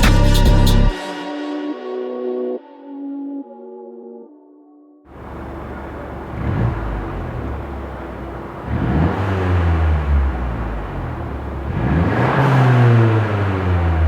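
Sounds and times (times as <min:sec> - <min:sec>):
car engine accelerating: 0:05.1 - 0:14.0.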